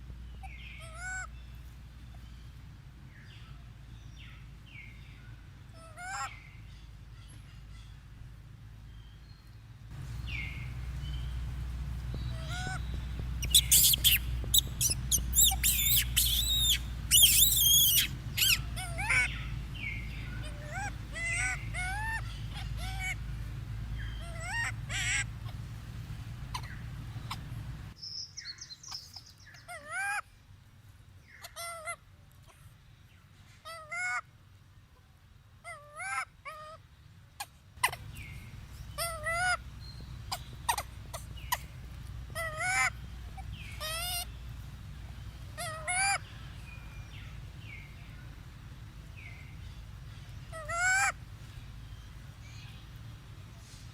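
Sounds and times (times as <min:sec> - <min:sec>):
low rumble: 0:07.9 - 0:28.0
monkeys squealing and crying: 0:12.3 - 0:12.8, 0:13.4 - 0:19.6, 0:20.3 - 0:23.2, 0:24.1 - 0:25.6, 0:26.5 - 0:27.5, 0:35.7 - 0:36.8, 0:37.8 - 0:38.3, 0:39.0 - 0:39.6, 0:40.2 - 0:44.3, 0:45.5 - 0:46.2, 0:50.5 - 0:51.2.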